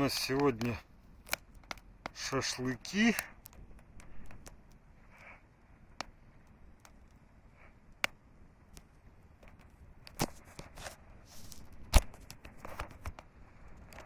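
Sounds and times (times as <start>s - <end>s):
campfire wood crackling: 0.0s - 14.0s.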